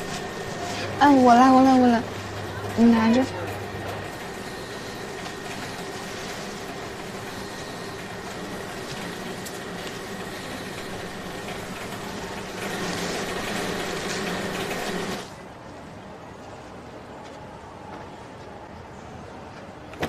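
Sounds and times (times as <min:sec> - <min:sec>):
luggage-wrapping machine hum: 0:00.0 - 0:15.5.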